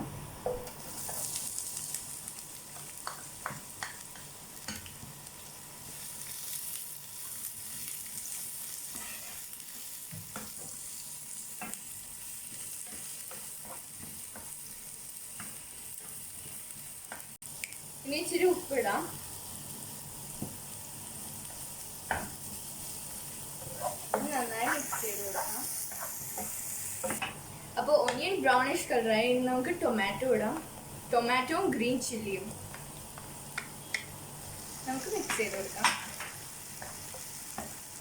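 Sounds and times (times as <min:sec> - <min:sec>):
onion and garlic sizzling in oil: 0:00.0 - 0:38.0
spatula scraping a pan: 0:06.3 - 0:16.7, 0:23.6 - 0:27.2.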